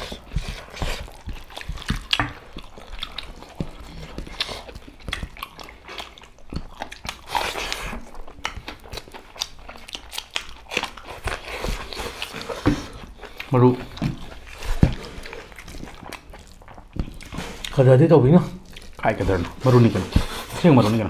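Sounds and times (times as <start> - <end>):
people chewing and eating: 0.0 - 21.0
wet mouth smacks and clicks: 4.7 - 7.2.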